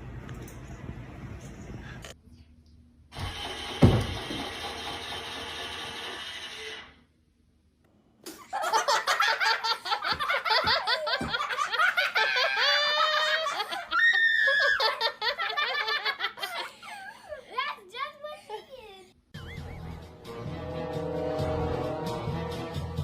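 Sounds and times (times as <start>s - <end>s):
people laughing: 8.4s - 17.4s
music: 19.4s - 23.0s.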